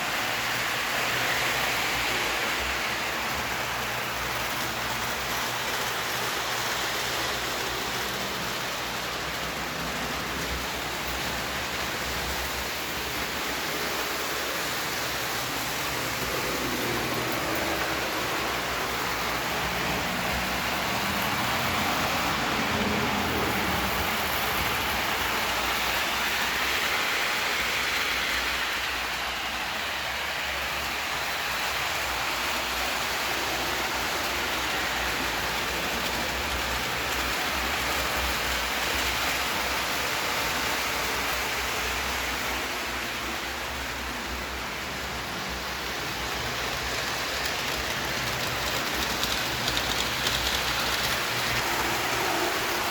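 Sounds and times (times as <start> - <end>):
model train running on track: 0.0 - 52.9.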